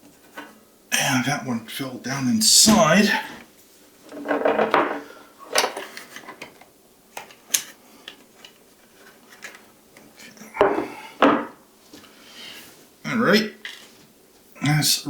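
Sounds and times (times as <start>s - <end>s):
loud knocks: 10.6s - 11.6s.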